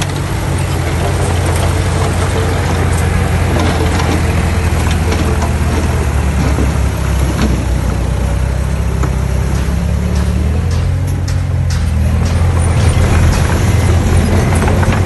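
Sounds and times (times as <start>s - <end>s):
heavy diesel engine rumbling: 0.0s - 15.0s
light clicks and clanks: 9.0s - 15.0s.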